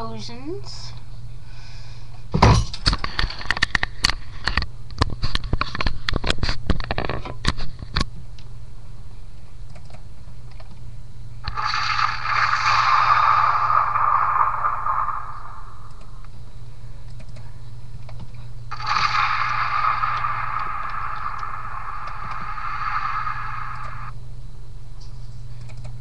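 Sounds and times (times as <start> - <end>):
steady low hum: 0.0 - 26.0
explosion cracks and crackling: 11.4 - 16.0, 18.7 - 24.2
steady hiss: 11.4 - 16.9, 18.7 - 24.2.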